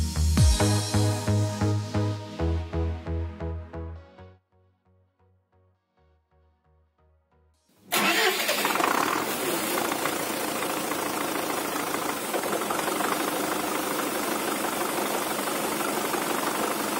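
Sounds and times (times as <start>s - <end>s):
tractor diesel engine running: 7.9s - 16.9s.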